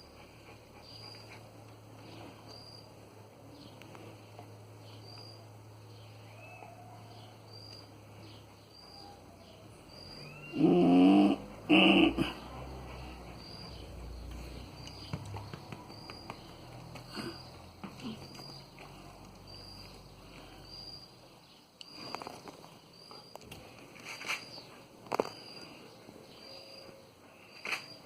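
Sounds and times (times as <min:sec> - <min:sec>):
faint high chirps: 0:09.9 - 0:11.0
dog vocalizing: 0:10.5 - 0:13.7.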